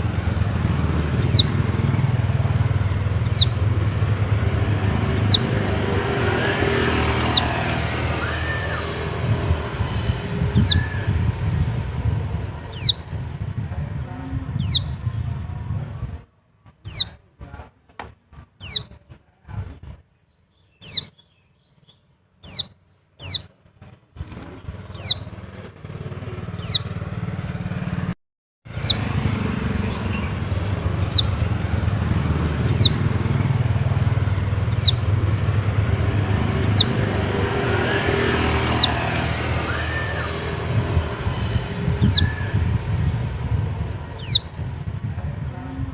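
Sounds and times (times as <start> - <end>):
small bird calling high notes: 1.1 - 2.1, 3.2 - 11.9, 12.6 - 13.1, 14.5 - 15.0, 16.8 - 17.2, 20.8 - 21.3, 22.4 - 23.5, 24.9 - 25.3, 26.5 - 27.0, 28.7 - 31.8, 32.5 - 33.6, 34.6 - 44.7.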